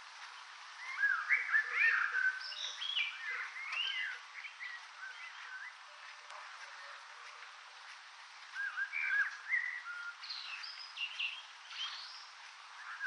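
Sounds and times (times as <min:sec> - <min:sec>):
steady hiss: 0:00.0 - 0:13.0
birds chirping and whistling: 0:00.8 - 0:05.8, 0:08.5 - 0:13.0.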